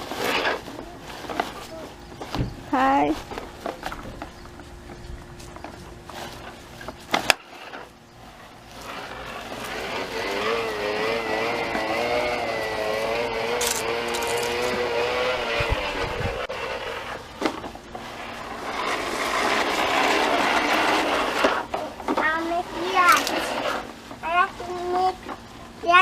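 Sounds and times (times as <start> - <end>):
motor whirring: 8.7 - 17.2.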